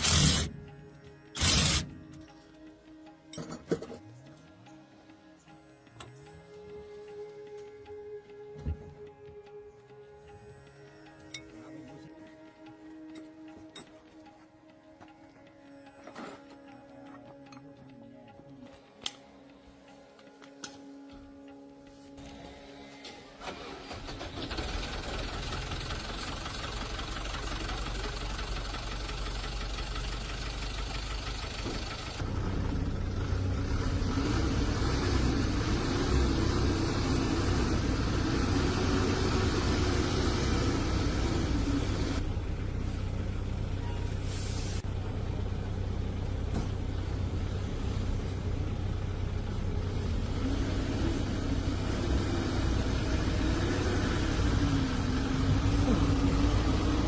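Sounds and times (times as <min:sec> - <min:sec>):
dump truck engine running: 0:00.0 - 0:02.0, 0:23.4 - 0:57.0.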